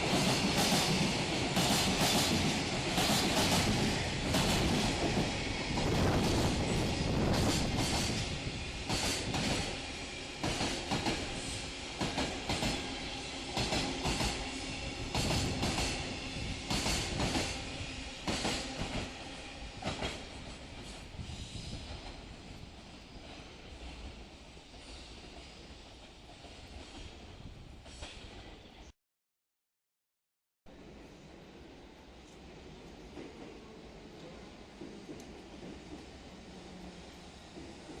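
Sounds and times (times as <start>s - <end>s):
freight train wheels clacking: 0.0s - 27.2s.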